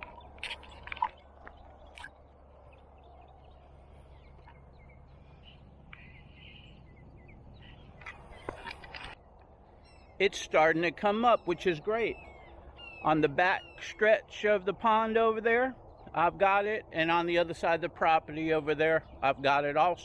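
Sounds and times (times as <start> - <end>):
faint bird calls: 0.0 - 14.0
low outdoor rumble: 0.0 - 20.0.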